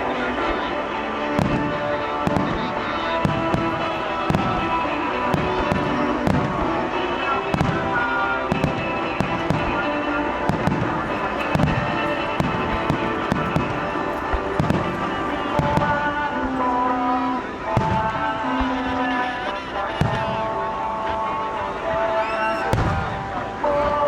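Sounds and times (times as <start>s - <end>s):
fireworks bursting: 0.0s - 24.0s
music playing: 0.0s - 24.0s.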